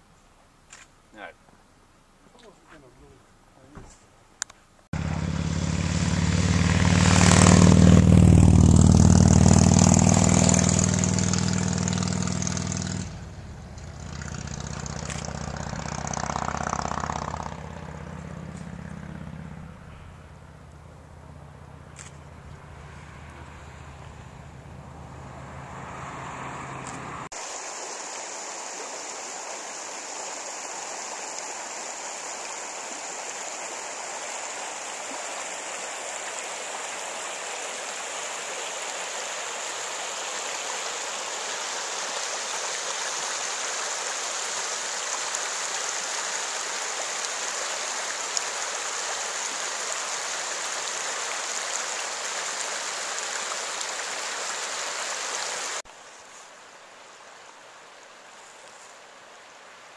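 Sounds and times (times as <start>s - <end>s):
rushing running water: 5.0s - 20.9s, 25.0s - 59.9s
low engine hum: 5.0s - 27.3s.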